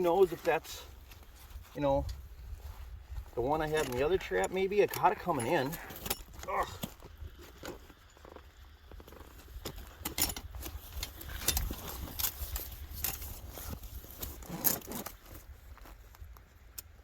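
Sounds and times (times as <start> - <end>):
wind rumble on microphone: 1.0 - 4.4
person grunting: 6.4 - 6.8.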